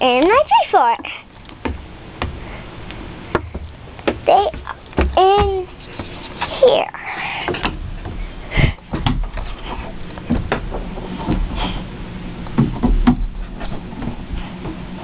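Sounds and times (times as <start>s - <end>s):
knocks on ladder: 3.3s - 5.7s, 12.6s - 13.4s.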